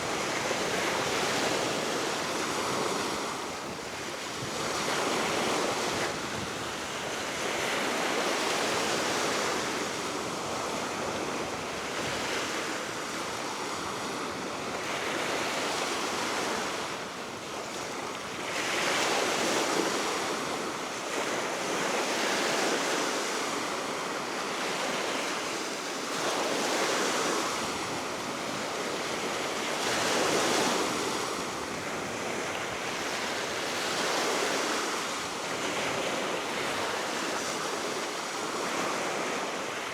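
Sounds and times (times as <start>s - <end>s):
wind noise on microphone: 0.0s - 12.7s.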